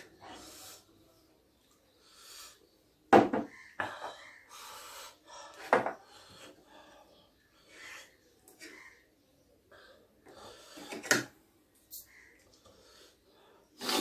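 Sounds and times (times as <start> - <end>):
breathy hissing: 0.0 - 1.2, 1.9 - 2.8.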